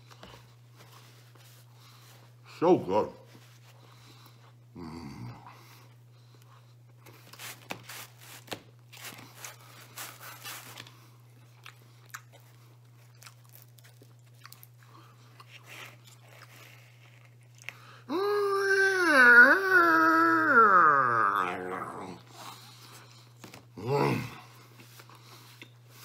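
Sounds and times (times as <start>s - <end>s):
person crunching crust: 7.0s - 18.1s
dog howling: 18.1s - 22.2s.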